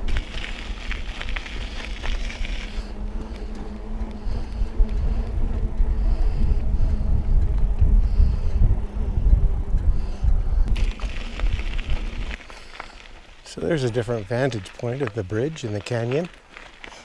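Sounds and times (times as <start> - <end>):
bike tyres crunching on gravel: 0.0 - 5.3, 10.7 - 17.0
wind rumbling on microphone: 0.0 - 16.9.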